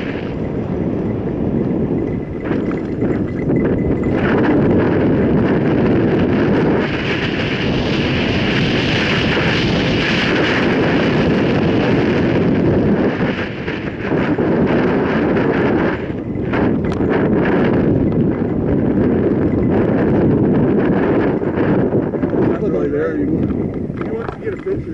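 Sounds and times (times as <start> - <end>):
wind rushing over microphone: 0.0 - 24.9.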